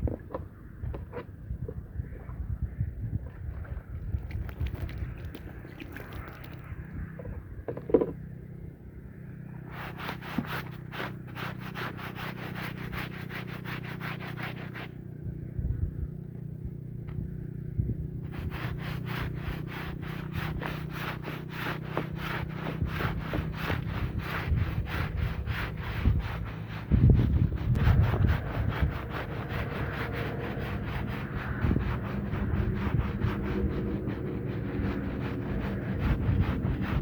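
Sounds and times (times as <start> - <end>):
steady low hum: 0.0 - 37.0
stiff brush scrubbing wet rug: 3.6 - 7.2, 9.5 - 15.1, 18.1 - 37.0.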